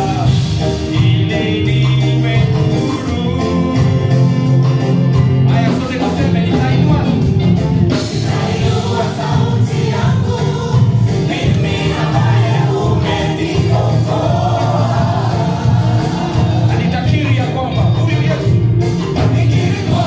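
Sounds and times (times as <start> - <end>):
voices singing together: 0.0 - 7.3, 7.9 - 20.0
band with steady beat: 0.0 - 20.0.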